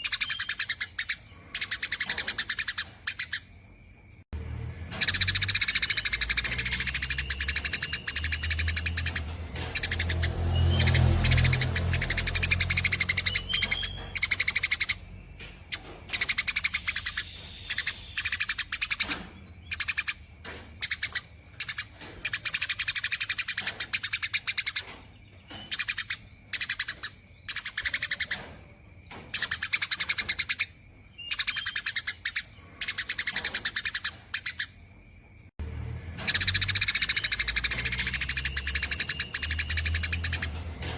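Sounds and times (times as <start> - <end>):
sparrow chattering trill: 0.0 - 3.6, 4.9 - 34.8, 36.2 - 40.9.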